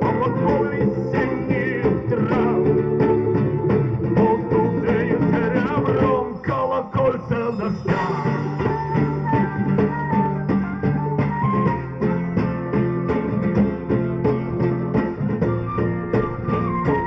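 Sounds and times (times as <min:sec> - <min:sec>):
folk band playing live: 0:00.0 - 0:17.0
guitar accompaniment: 0:00.0 - 0:17.0
wavering melody line: 0:07.5 - 0:13.7, 0:15.4 - 0:17.0.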